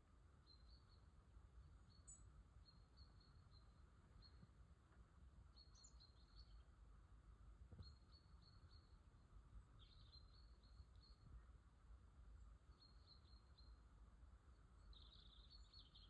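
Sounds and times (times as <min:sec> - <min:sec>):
small bird chirping: 0:00.4 - 0:01.1, 0:01.7 - 0:04.5, 0:05.5 - 0:06.7, 0:07.7 - 0:09.0, 0:09.8 - 0:11.4, 0:12.7 - 0:13.8, 0:14.8 - 0:16.0.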